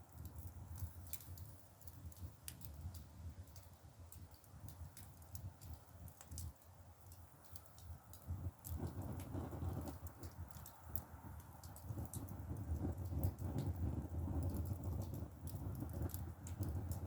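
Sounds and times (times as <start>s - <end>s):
firewood crackling and popping: 0.0s - 17.0s.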